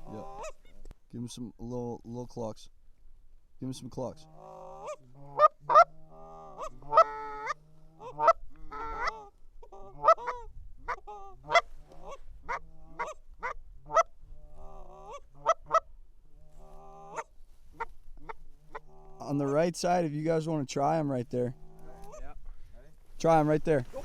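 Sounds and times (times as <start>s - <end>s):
goose call honks and clucks: 0.0s - 0.9s, 4.0s - 19.6s, 21.5s - 22.5s.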